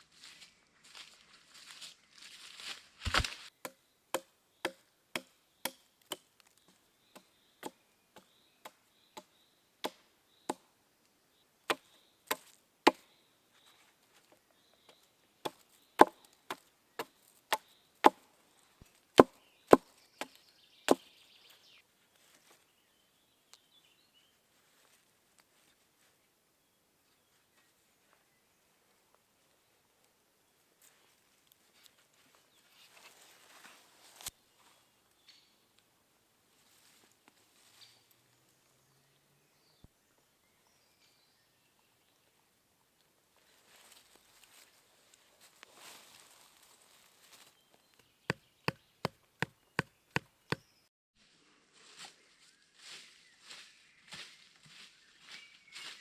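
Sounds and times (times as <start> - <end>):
wood being chopped: 3.1 - 6.3, 7.2 - 10.6, 11.7 - 13.0, 15.5 - 18.2, 19.2 - 21.1, 48.3 - 50.6.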